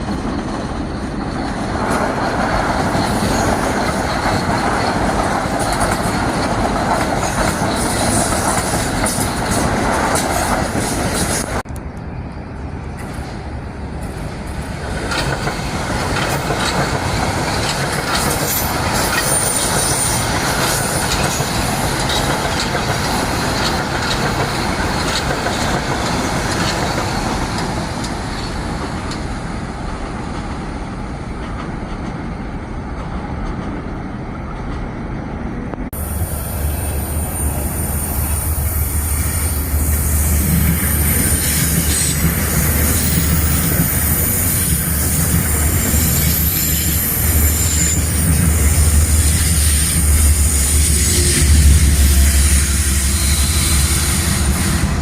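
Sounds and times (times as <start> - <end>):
train wheels rumbling on rails: 0.0 - 55.0
high wheel squeals: 36.0 - 55.0.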